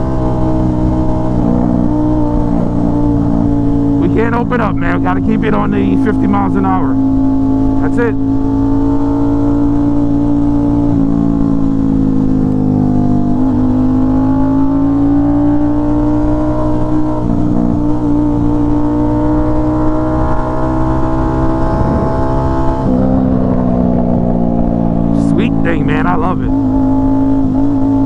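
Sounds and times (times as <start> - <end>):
motorcycle engine cruising: 0.0 - 28.0
wind noise on microphone: 21.4 - 25.0.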